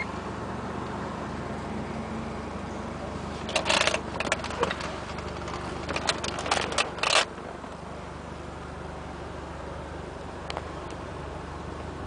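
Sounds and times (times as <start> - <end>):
car engine idling: 0.0 - 12.0
sharp clicks and scrapes: 3.4 - 7.3.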